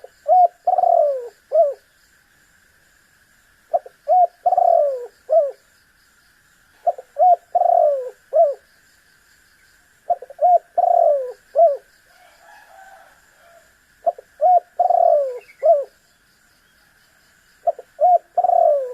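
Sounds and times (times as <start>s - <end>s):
dove cooing: 0.0s - 1.8s, 3.7s - 5.6s, 6.8s - 8.6s, 10.1s - 16.0s, 17.6s - 18.9s.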